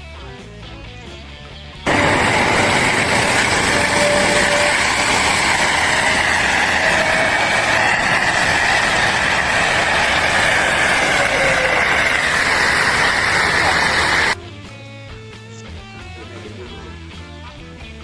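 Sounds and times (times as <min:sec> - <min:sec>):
loud machine drone: 0:01.8 - 0:14.4.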